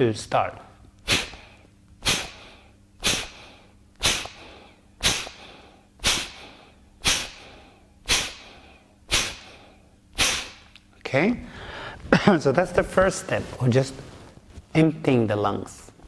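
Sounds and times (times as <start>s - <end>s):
forceful nasal exhales: 1.0s - 10.7s.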